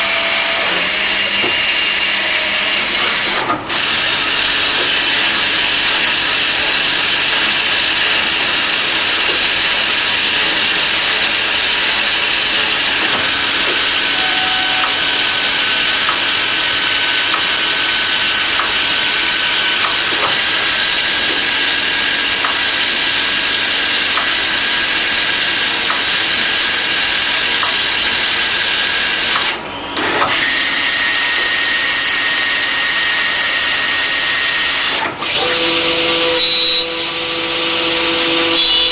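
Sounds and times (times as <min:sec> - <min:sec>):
lathe turning metal: 0:00.0 - 0:38.8.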